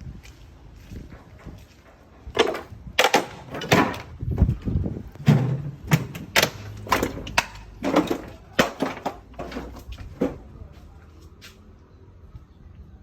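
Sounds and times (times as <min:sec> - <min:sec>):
knocks and clattering bangs: 0:01.1 - 0:10.5.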